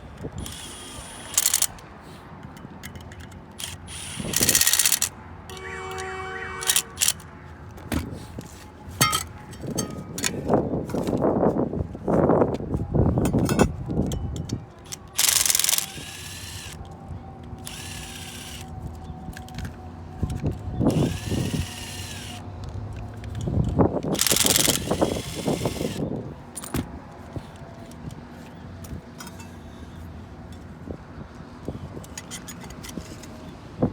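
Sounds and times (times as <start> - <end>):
power drill spinning: 0.4 - 1.7, 3.6 - 5.1, 14.9 - 16.8, 17.6 - 18.7, 20.9 - 22.4, 24.1 - 26.0.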